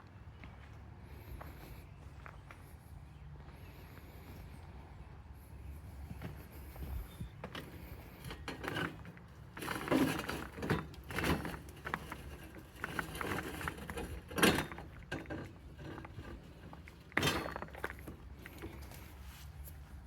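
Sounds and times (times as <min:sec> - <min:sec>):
objects knocking and rattling: 0:08.3 - 0:18.8.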